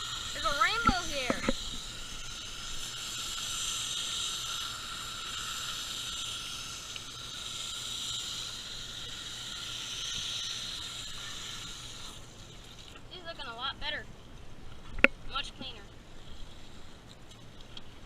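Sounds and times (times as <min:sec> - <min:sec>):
hose spray nozzle hissing: 0:00.0 - 0:13.0.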